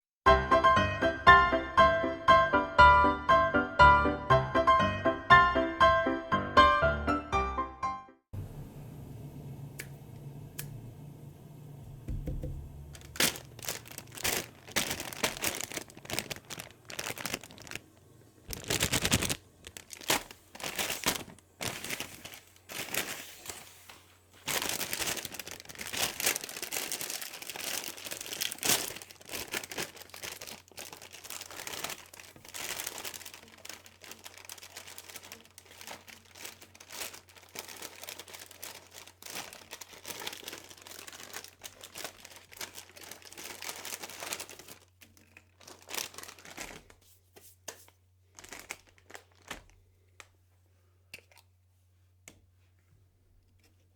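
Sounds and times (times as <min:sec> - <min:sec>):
chip bag crinkling: 0:12.4 - 0:47.1, 0:48.3 - 0:50.3.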